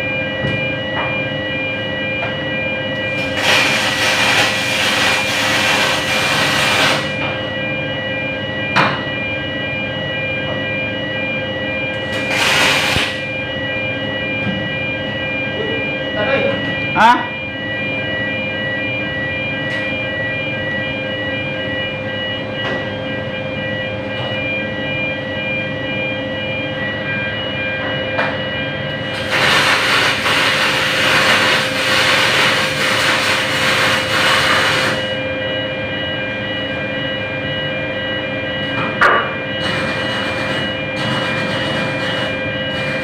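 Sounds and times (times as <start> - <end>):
machinery hum: 0.0 - 43.0
welding arc hissing and crackling: 3.2 - 7.2, 12.0 - 13.3, 29.1 - 35.1, 39.6 - 43.0.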